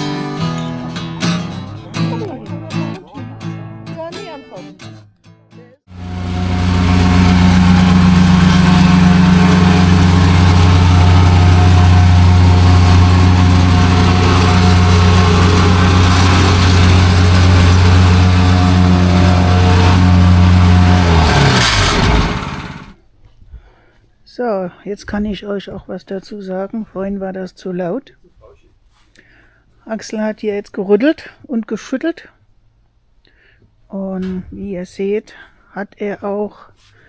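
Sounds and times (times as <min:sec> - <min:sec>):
plate compactor engine running: 0:05.9 - 0:23.0.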